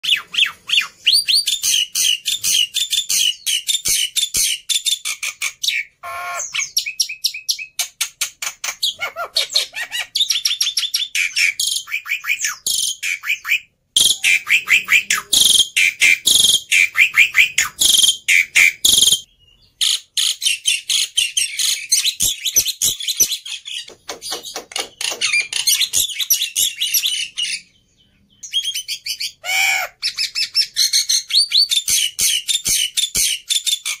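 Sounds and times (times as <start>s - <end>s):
myna singing fast chirps: 8.9s - 19.3s.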